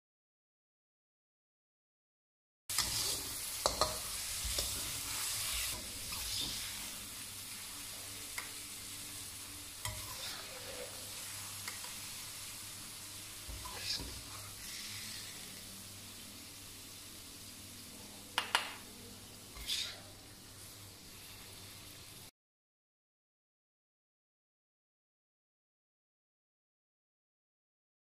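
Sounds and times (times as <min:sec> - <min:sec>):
metal spatula scraping pan: 0:02.7 - 0:07.0, 0:09.8 - 0:12.0
mushrooms sizzling in a wok: 0:02.7 - 0:22.3.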